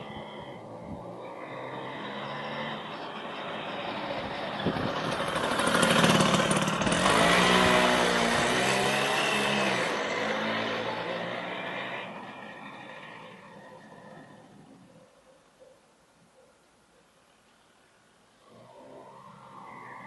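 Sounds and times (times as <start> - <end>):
moped engine running: 1.6 - 13.8.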